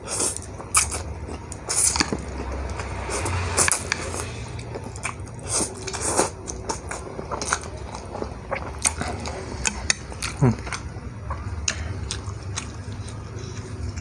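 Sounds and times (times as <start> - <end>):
biting and chewing: 0.0 - 14.0.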